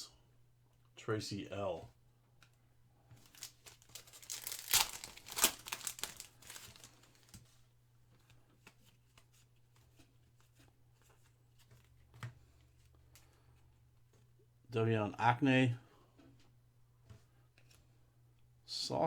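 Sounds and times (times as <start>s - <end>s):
foil wrapper tearing and crinkling: 3.2s - 7.4s
cards rustling: 3.2s - 7.5s.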